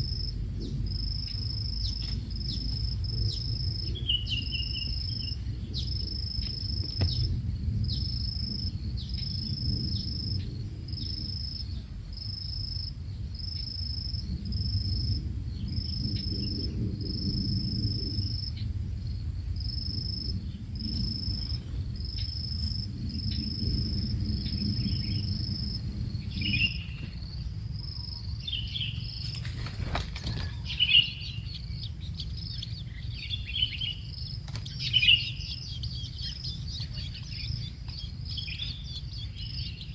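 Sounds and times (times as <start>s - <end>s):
constant low rumble: 0.0s - 39.9s
insect chirping: 0.0s - 39.9s
bird chirps: 3.3s - 8.1s, 30.2s - 39.9s
brief knock: 7.0s - 7.3s.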